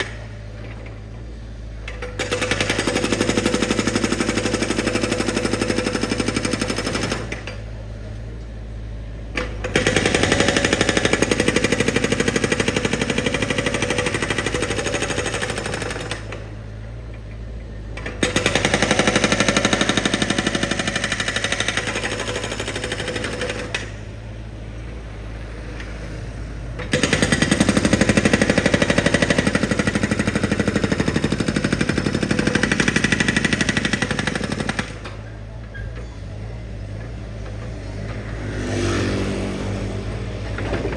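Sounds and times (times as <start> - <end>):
ground drill hammering: 18.2 - 23.9, 26.9 - 35.0.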